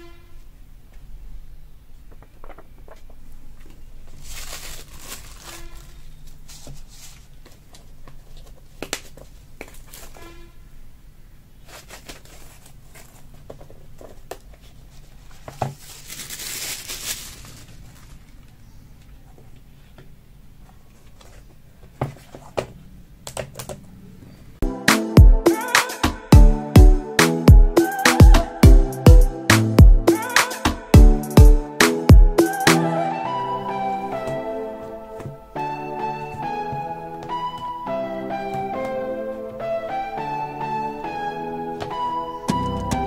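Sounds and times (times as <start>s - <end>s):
plastic and paper crinkling: 2.1s - 10.2s, 11.6s - 18.6s.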